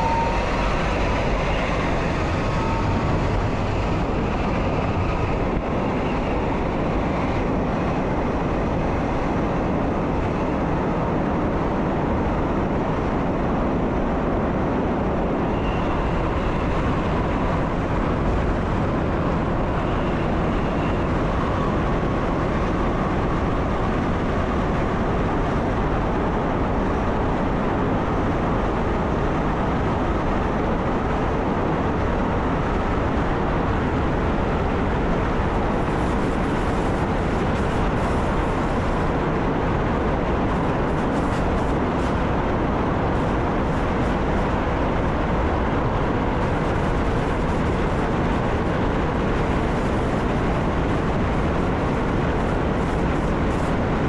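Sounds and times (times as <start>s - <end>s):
faint high whine: 0.0s - 7.7s, 15.2s - 23.8s
train rumbling and rolling: 0.0s - 54.0s.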